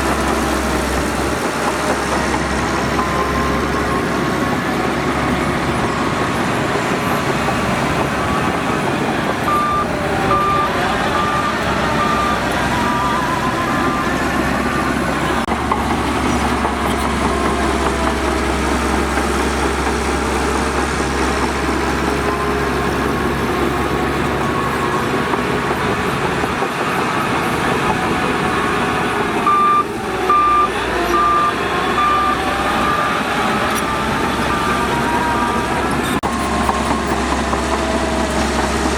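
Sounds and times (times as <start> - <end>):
heavy machinery running: 0.0 - 38.9
backup alarm beeping: 2.7 - 15.6, 27.9 - 37.2.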